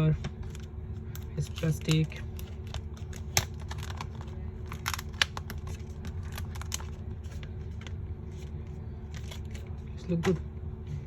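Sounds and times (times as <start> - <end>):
steady low hum: 0.0 - 11.0
plastic cover clicking and crinkling: 0.4 - 7.9.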